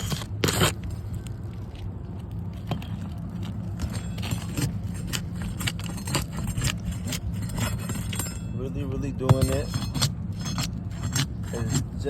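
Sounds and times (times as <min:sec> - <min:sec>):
shingles being pried loose: 0:00.0 - 0:00.9, 0:02.6 - 0:08.4, 0:09.2 - 0:12.0
steady low rumble: 0:00.0 - 0:12.0.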